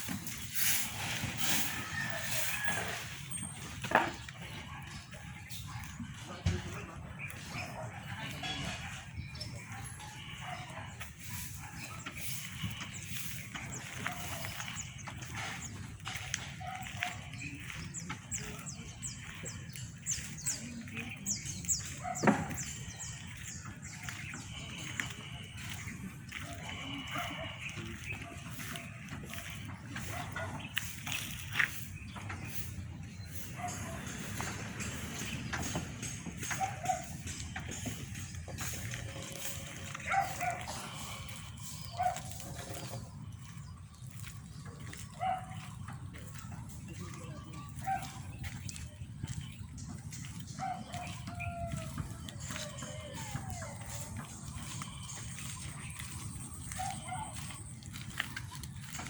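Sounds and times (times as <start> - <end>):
birds chirping: 0.0 - 59.0
dog barking: 7.5 - 12.5, 14.0 - 14.7, 16.4 - 17.7, 26.4 - 30.7, 33.5 - 34.5, 36.4 - 37.9, 39.4 - 41.2, 41.9 - 42.9, 45.1 - 45.7, 47.8 - 48.3, 50.6 - 51.8, 56.7 - 57.6.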